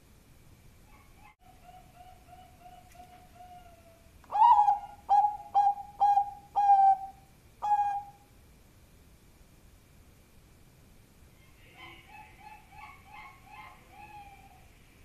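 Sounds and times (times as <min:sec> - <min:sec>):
dove cooing: 0:00.9 - 0:08.3, 0:11.6 - 0:14.7.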